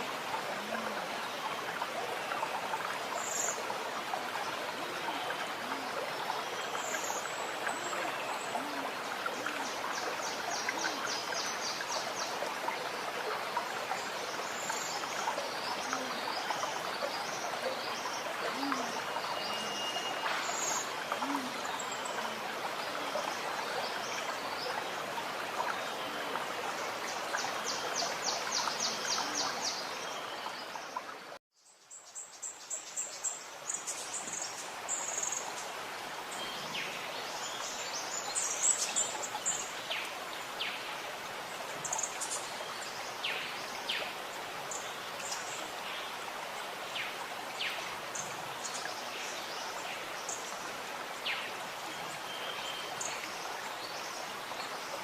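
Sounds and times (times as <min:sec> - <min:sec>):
stream gurgling: 0:00.0 - 0:55.0.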